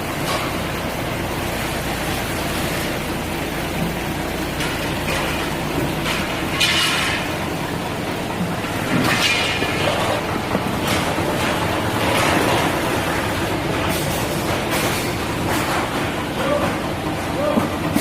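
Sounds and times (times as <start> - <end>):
machinery rattling: 0.0 - 18.0
sorting line machinery running: 0.0 - 18.0.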